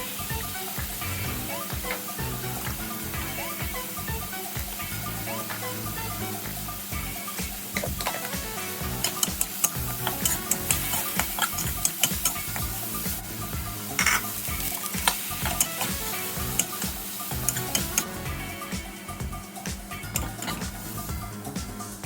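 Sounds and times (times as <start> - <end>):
food sizzling in a pan: 0.0 - 22.0
utensil scraping a pan: 9.0 - 12.7, 14.0 - 16.0.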